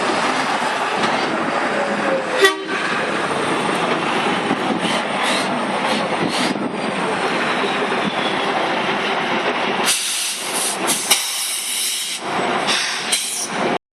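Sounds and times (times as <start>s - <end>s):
tow truck engine running: 0.0s - 13.8s
loud hissing bursts: 9.8s - 13.6s.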